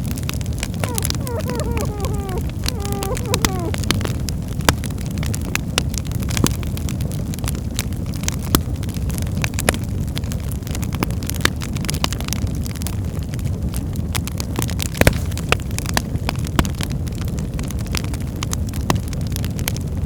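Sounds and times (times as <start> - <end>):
fire crackling and popping: 0.0 - 3.9.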